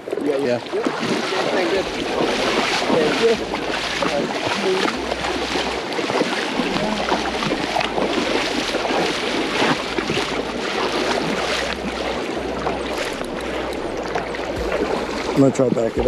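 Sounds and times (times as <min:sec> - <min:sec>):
wind and water rushing: 0:00.0 - 0:16.0
wind buffeting microphone: 0:00.0 - 0:16.0.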